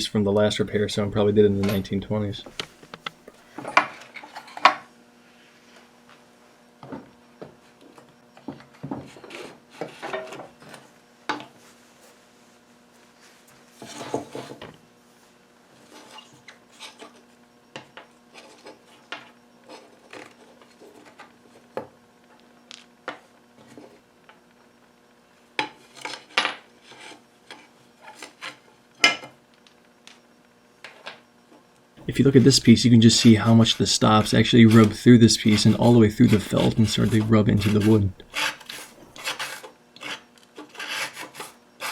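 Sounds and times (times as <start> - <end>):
faint steady hum: 0.0 - 41.9
scraping rub: 32.0 - 41.9.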